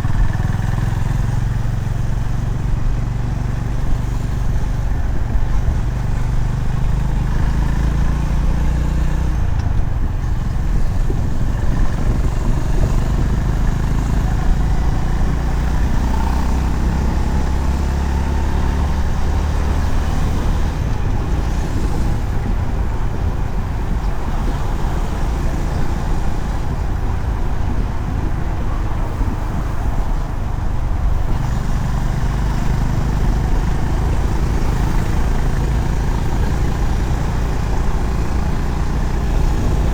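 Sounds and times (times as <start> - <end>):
motorcycle engine running: 0.0 - 39.9
wind rush over microphone: 9.3 - 39.9.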